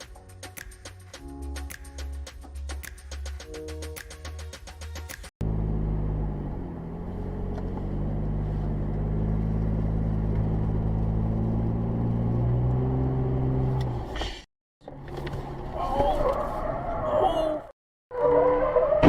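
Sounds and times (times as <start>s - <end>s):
car engine running: 5.4s - 14.1s
road noise: 5.4s - 19.0s.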